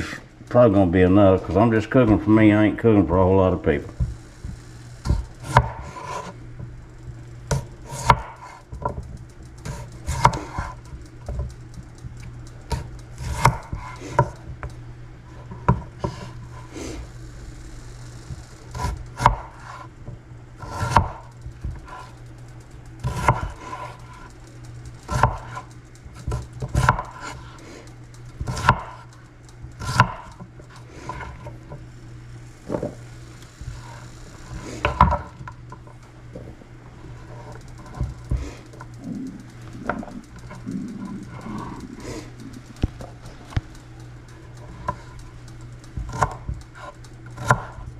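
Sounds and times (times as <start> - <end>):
steady low hum: 0.0 - 47.9
knife chopping on cutting board: 5.0 - 6.3, 7.5 - 8.6, 9.7 - 10.8, 12.7 - 14.4, 18.8 - 19.8, 23.0 - 23.9, 25.1 - 25.6, 26.3 - 27.4, 28.4 - 29.0, 29.8 - 30.3, 46.0 - 47.8.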